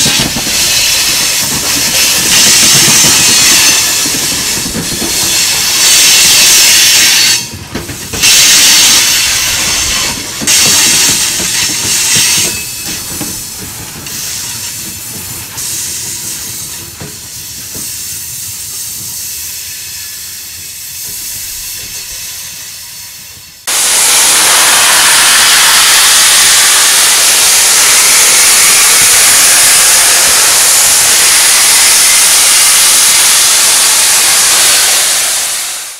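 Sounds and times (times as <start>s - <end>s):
freight cars rolling on rails: 0.0s - 19.8s
steam venting hiss: 8.2s - 35.9s.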